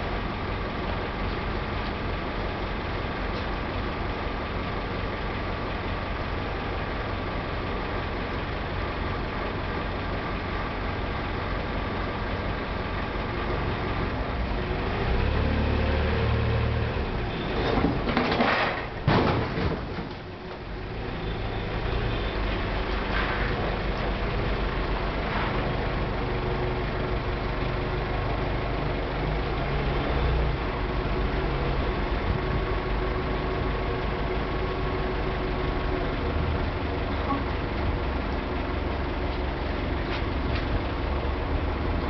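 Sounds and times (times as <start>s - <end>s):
forklift engine running: 0.0s - 42.0s
car crashing onto ground: 17.6s - 20.3s.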